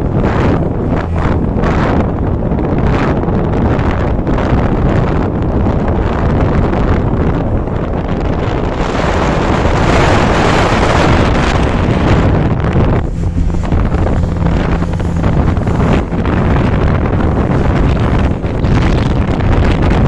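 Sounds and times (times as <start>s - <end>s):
boat engine drone: 0.0s - 20.0s
wind buffeting microphone: 0.0s - 20.0s.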